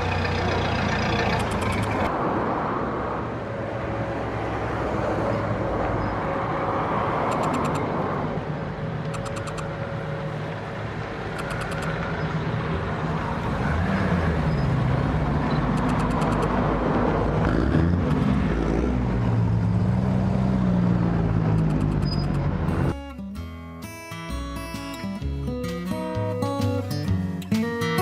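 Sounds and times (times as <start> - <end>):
bursts of rapid clicks: 9.1 - 9.7.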